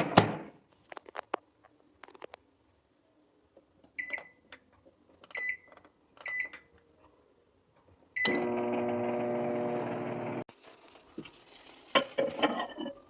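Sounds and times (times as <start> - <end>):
keypad button clicks and beeps: 4.0 - 4.4, 5.3 - 6.7
microwave oven humming: 8.2 - 10.4.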